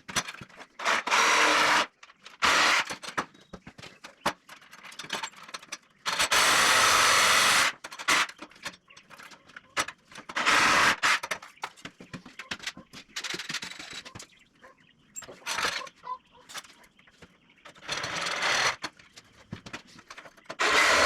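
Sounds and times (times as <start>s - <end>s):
tools and wood clicking: 0.0s - 14.4s, 15.2s - 21.0s
power tool running: 0.8s - 2.9s, 6.2s - 7.8s, 20.6s - 21.0s.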